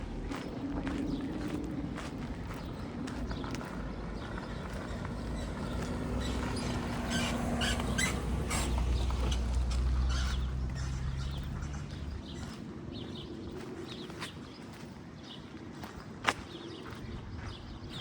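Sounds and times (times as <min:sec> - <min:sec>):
vehicle engine passing: 0:00.0 - 0:13.2
footsteps on pavement: 0:00.0 - 0:18.0.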